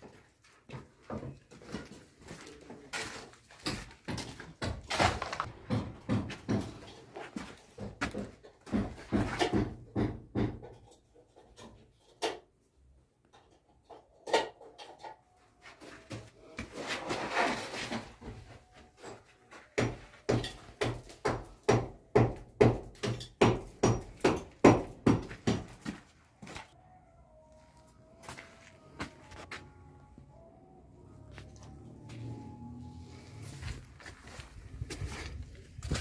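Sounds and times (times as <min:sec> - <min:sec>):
sharp knocks and thuds: 0:03.8 - 0:10.8, 0:19.8 - 0:26.0.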